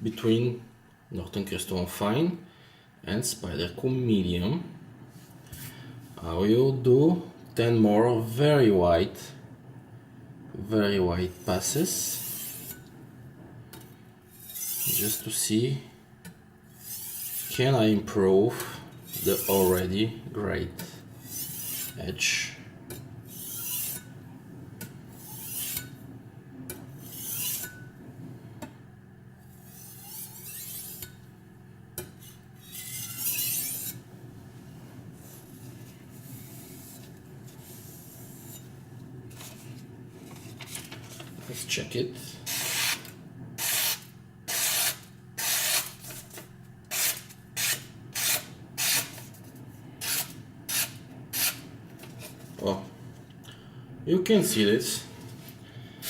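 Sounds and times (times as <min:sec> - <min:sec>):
knife scraping on sharpening stone: 0:12.2 - 0:12.8, 0:14.3 - 0:15.2, 0:16.7 - 0:17.6, 0:21.2 - 0:22.0, 0:23.3 - 0:24.1, 0:25.2 - 0:25.9, 0:27.0 - 0:27.9, 0:29.6 - 0:31.2, 0:32.1 - 0:34.0, 0:42.5 - 0:46.3
knife slicing paper: 0:42.5 - 0:49.2.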